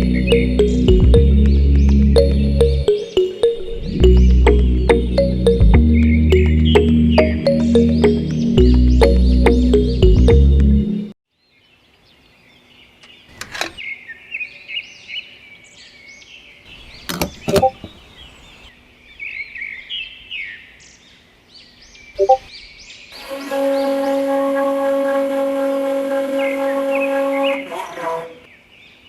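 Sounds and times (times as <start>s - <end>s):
music: 0.0s - 11.2s
small birds chirping: 11.4s - 23.2s
steady horn-like tone: 23.2s - 28.5s.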